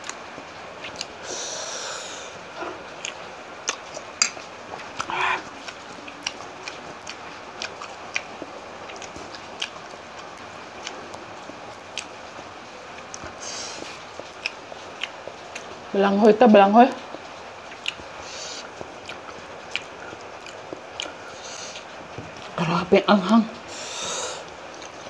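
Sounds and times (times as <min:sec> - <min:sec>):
wet chewing of food: 0:00.0 - 0:25.0
loud breaths: 0:01.2 - 0:02.7, 0:23.7 - 0:24.5.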